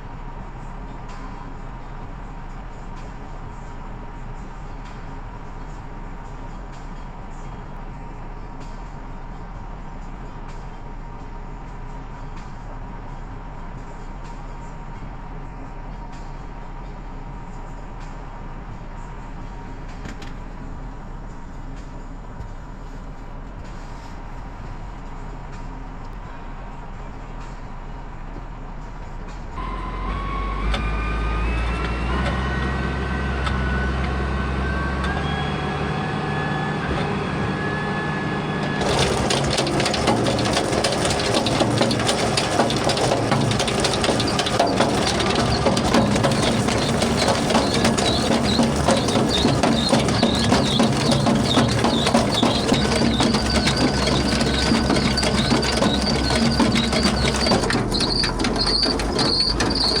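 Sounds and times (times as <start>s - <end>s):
farm vehicle engine whining: 29.6s - 60.0s
loud crunching and rattling: 38.6s - 60.0s.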